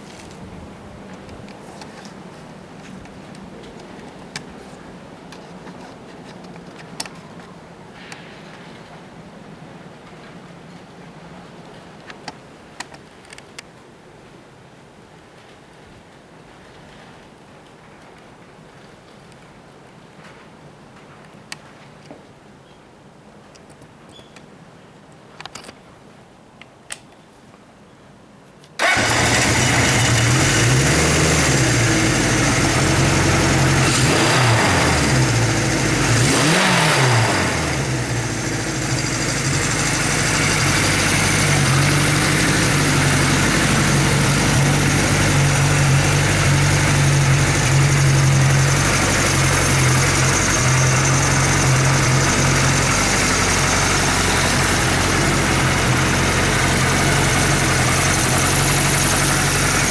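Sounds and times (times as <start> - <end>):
motorcycle engine idling: 28.8 - 59.9
motorcycle engine starting and revving: 28.8 - 59.9.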